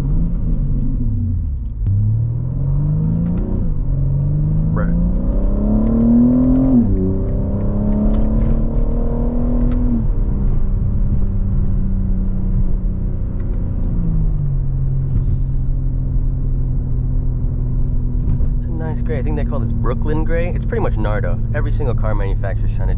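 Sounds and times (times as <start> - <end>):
car engine accelerating hard: 0.0 - 22.9.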